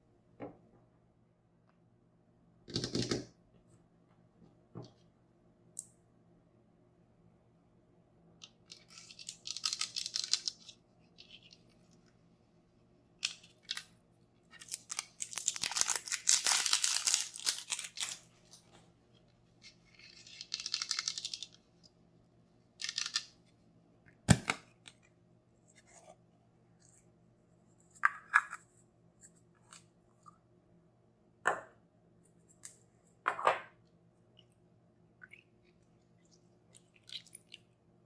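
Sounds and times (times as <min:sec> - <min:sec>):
packaging tearing and crinkling: 0:14.6 - 0:18.3.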